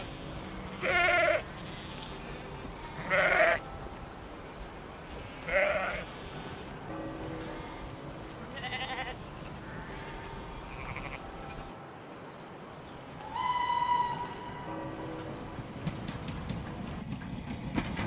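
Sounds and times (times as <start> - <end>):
sheep bleating: 0.0 - 3.7, 5.1 - 6.8, 7.4 - 11.7
soft background music: 0.0 - 13.3.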